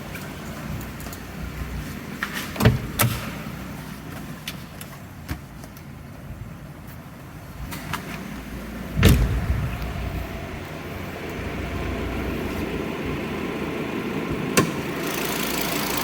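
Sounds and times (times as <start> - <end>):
blower fan rushing air: 7.6 - 16.0.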